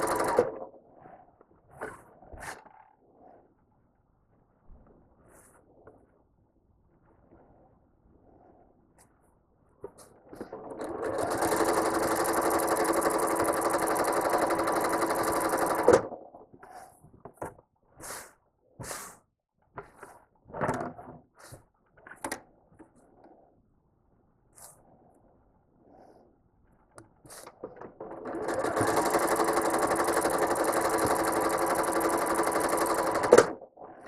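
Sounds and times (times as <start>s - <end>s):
sewing machine stitching: 0.0s - 0.7s, 10.3s - 16.2s, 27.4s - 33.6s.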